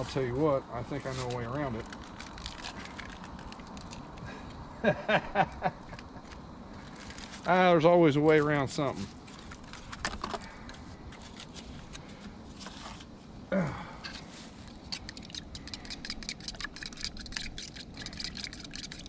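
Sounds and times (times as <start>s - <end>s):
person grunting: 13.5s - 14.0s.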